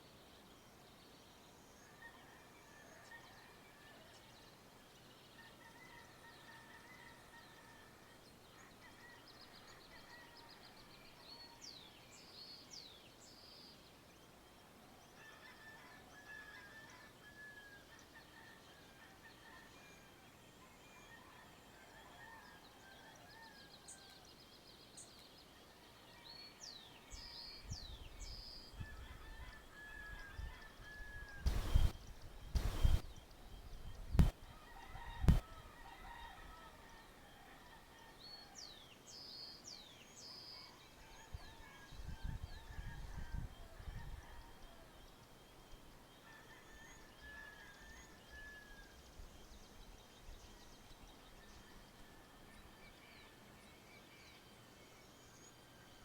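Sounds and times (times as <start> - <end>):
songbirds whistling: 31.2 - 33.1
domestic fowl calling: 31.4 - 31.9, 32.6 - 33.0.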